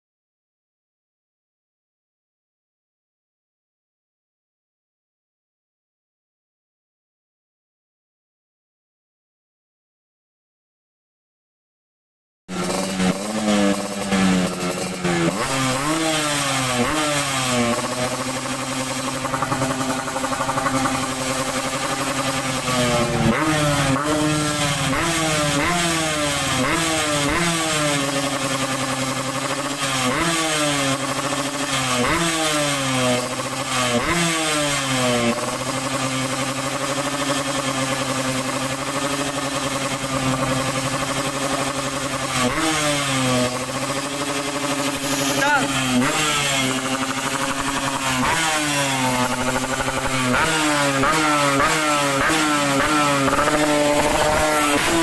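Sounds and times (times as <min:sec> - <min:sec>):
motorcycle engine revving: 0:12.5 - 0:55.0.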